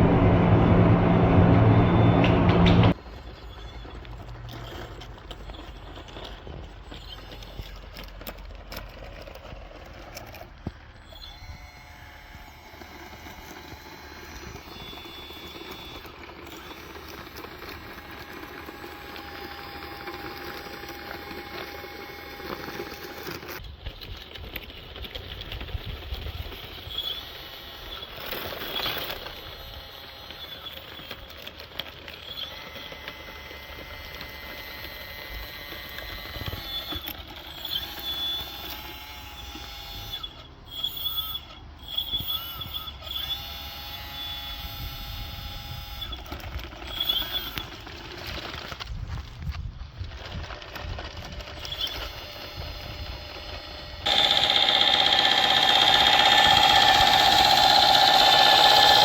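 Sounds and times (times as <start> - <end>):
light mechanical clatter: 0.0 - 11.4, 46.0 - 59.0
electric motors whining: 0.0 - 23.6, 26.6 - 48.1, 51.4 - 59.0.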